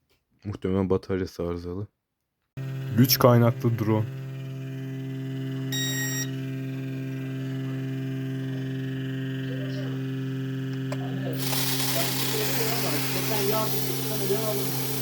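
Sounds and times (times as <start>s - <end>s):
drone motors humming: 2.6s - 15.0s
short electronic beep: 5.7s - 6.4s.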